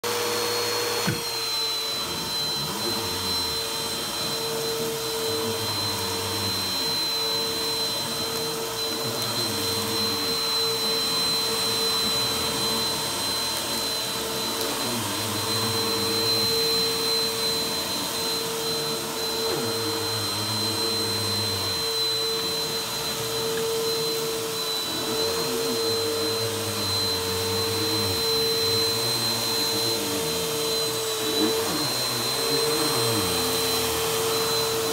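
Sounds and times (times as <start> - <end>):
vacuum cleaner running: 0.0 - 34.9.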